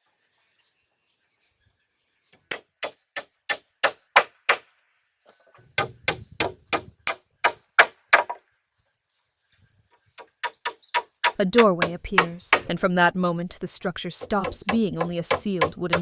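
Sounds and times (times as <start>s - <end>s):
hand tool striking timber: 5.8s - 8.4s, 10.2s - 12.7s, 14.2s - 16.0s.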